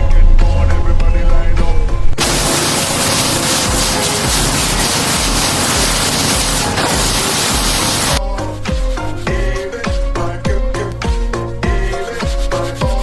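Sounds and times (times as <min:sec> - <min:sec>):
spraying hiss: 0:02.2 - 0:08.2
background music with a beat: 0:02.2 - 0:13.0.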